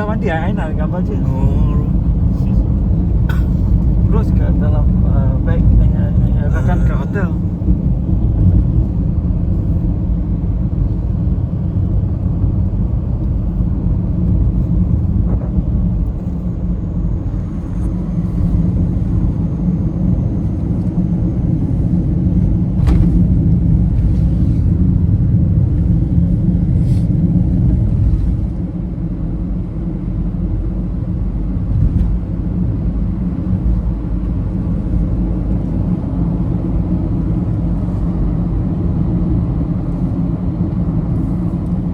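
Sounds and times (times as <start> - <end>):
car driving rumble: 0.0 - 41.9.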